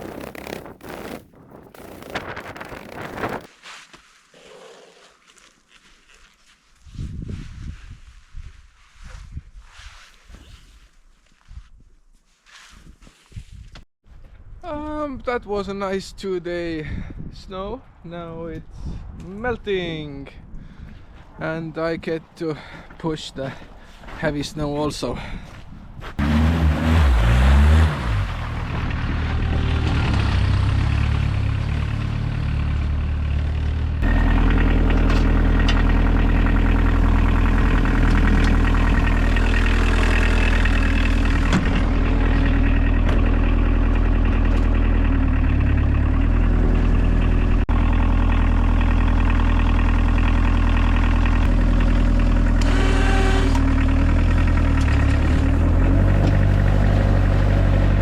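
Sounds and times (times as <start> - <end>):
diesel engine running: 26.2 - 58.0.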